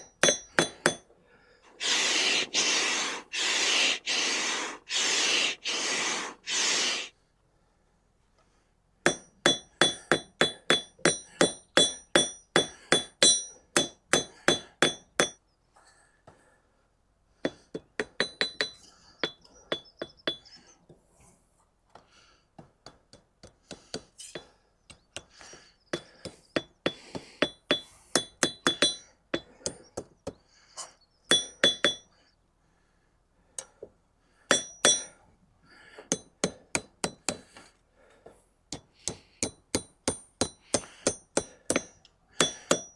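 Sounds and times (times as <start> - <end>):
hammer striking steel on anvil: 0.0 - 1.1, 9.1 - 15.4, 27.4 - 29.1, 31.3 - 32.1, 34.5 - 35.2, 38.8 - 42.9.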